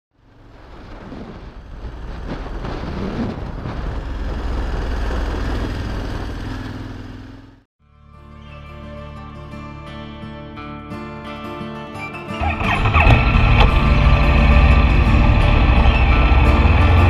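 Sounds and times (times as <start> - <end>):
wind noise rushing: 0.4 - 6.4
motorcycle engine running: 1.5 - 7.7, 12.4 - 17.0
music: 7.8 - 17.0.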